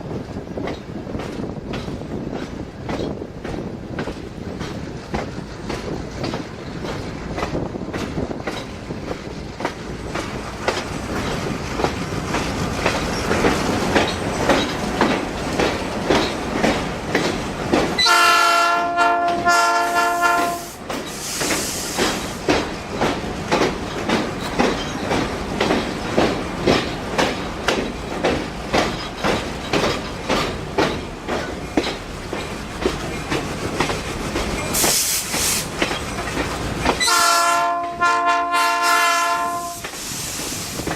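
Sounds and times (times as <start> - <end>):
train wheels clicking over rail joints: 0.0 - 40.9
locomotive horn blasts: 18.0 - 20.8, 37.0 - 39.9.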